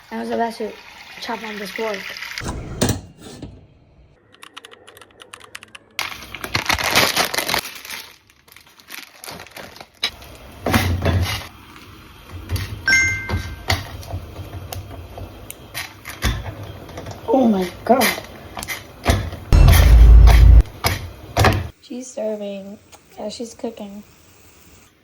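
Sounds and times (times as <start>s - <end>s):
food packaging crinkling: 6.0s - 10.2s.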